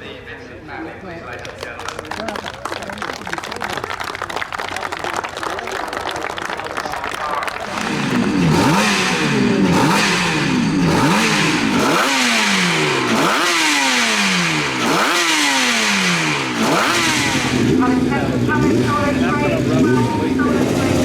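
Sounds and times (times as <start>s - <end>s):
motorcycle engine revving: 7.5s - 21.0s.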